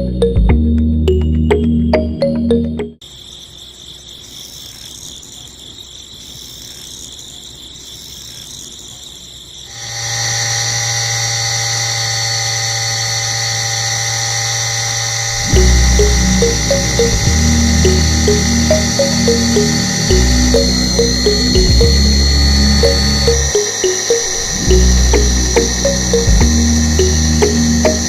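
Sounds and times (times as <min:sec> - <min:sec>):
background music: 0:00.0 - 0:03.0, 0:15.4 - 0:28.0
electric motor whining: 0:09.8 - 0:28.0.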